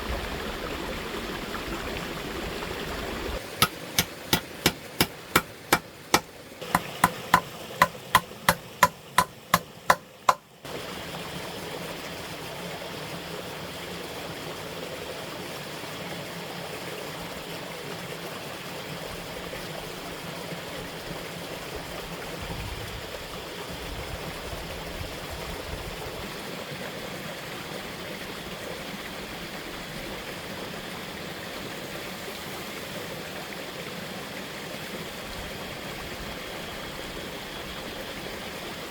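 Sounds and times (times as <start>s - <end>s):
flowing water rushing: 0.0s - 38.9s
sharp knocks: 3.6s - 10.4s.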